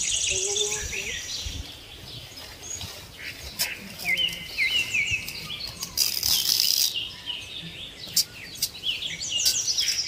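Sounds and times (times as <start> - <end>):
small birds chirping: 0.0 - 10.0
dry rustling hiss: 2.2 - 7.2.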